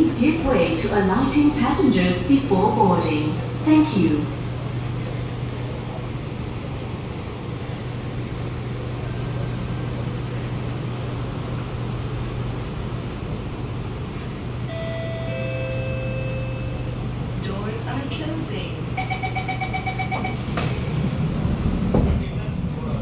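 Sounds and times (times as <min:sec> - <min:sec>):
train equipment humming: 0:00.0 - 0:23.0.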